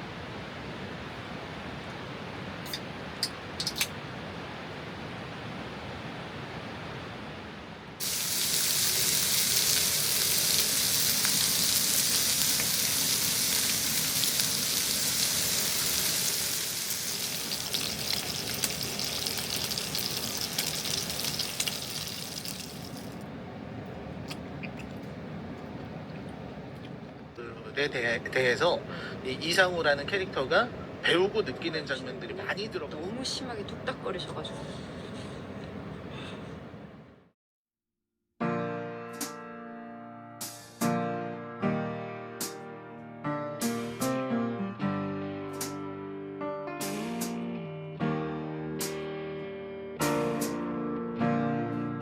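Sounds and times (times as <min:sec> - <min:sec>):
loud bright water rush: 0:08.0 - 0:23.2.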